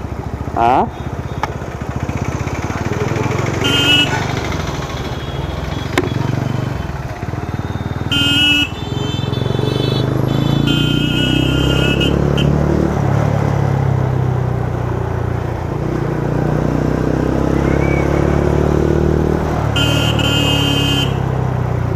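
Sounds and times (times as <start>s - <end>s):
motorcycle engine running: 0.0s - 21.9s
vehicle horns honking: 0.8s - 1.6s, 3.4s - 12.6s, 19.7s - 21.3s.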